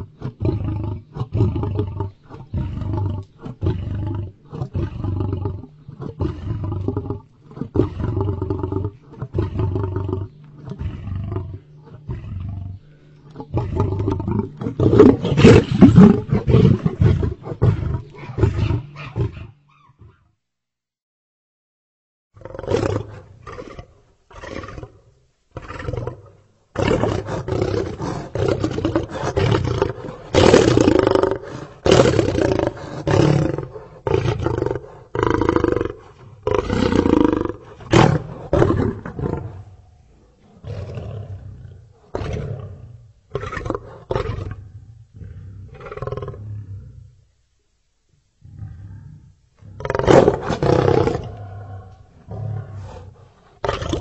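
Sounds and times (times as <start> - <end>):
lion roaring: 0.0 - 20.2, 25.6 - 47.2, 48.4 - 54.0.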